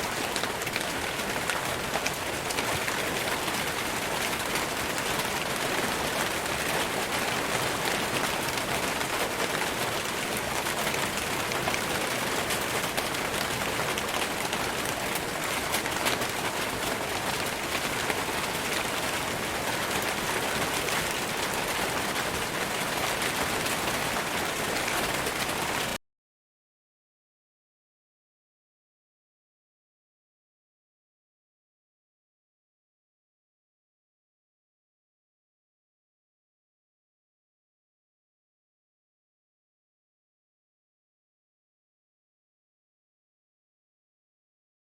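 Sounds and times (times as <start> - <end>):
rain falling on leaves: 0.0 - 26.0.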